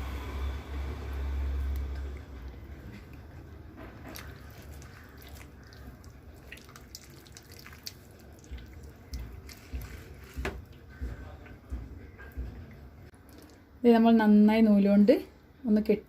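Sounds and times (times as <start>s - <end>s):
wet squishing: 1.6s - 11.0s, 13.2s - 13.6s.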